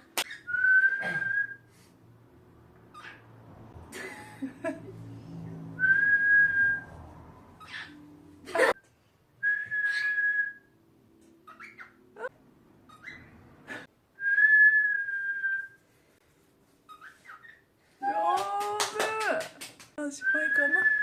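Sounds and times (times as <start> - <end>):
cockatiel whistling: 9.4 - 10.7.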